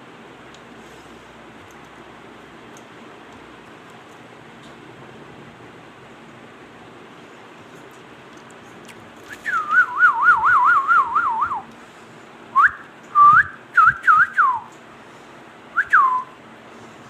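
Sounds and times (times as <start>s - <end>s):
parrot whistling: 9.3s - 11.6s.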